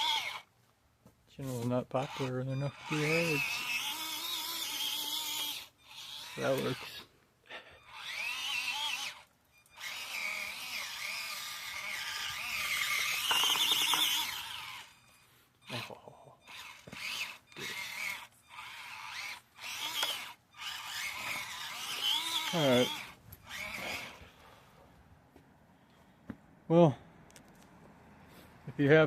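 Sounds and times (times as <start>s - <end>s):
small electric motor whining: 0.0s - 0.5s, 1.5s - 24.6s.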